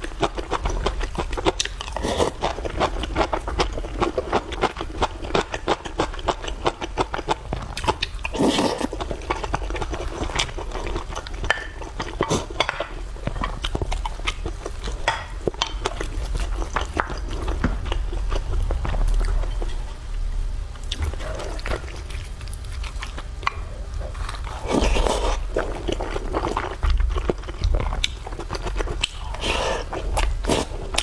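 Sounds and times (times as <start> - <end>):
wet chewing with mouth clicks: 0.0 - 20.0, 20.8 - 31.0.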